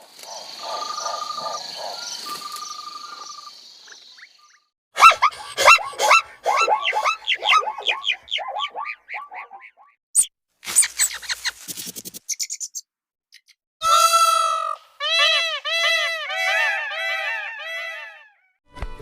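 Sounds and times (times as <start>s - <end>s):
pulsing high animal call: 5.0s - 9.8s, 13.8s - 18.5s
short downward-sliding animal calls: 5.0s - 9.8s.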